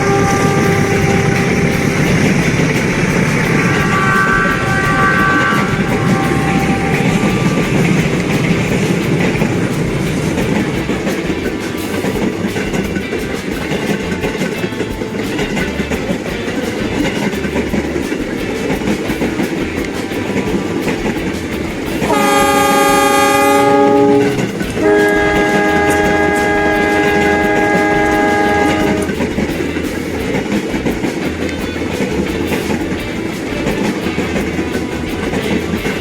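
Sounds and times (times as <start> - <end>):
locomotive horn blasts: 0.0 - 2.4, 3.4 - 8.5, 22.1 - 29.2
model locomotive rumbling: 0.0 - 36.0.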